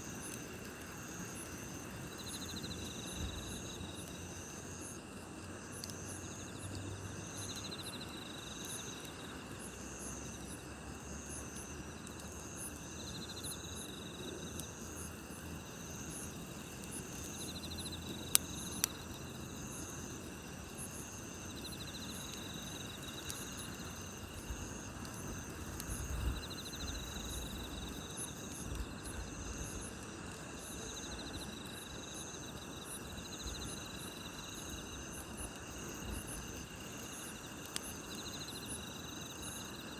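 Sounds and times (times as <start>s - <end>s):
campfire crackling: 0.0s - 39.9s
insects chirping: 0.0s - 39.9s
fire pops: 15.9s - 30.7s.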